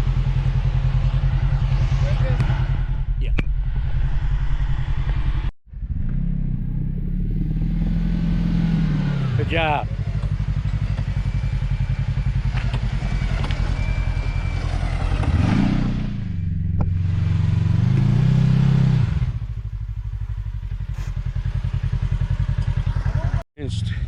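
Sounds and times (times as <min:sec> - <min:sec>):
utility vehicle engine idling: 0:09.2 - 0:15.4, 0:19.3 - 0:24.0.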